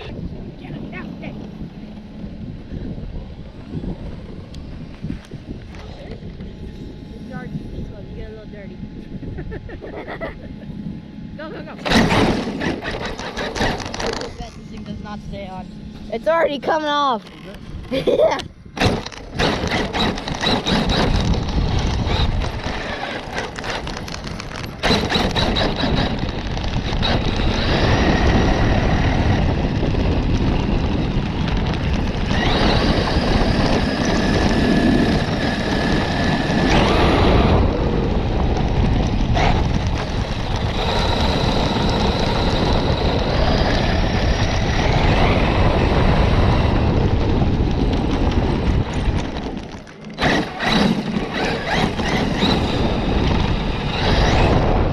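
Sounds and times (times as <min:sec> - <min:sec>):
rumble and rattle over rough ground: 0:00.0 - 0:54.9
rc truck motor whine: 0:11.8 - 0:14.8, 0:18.8 - 0:54.9.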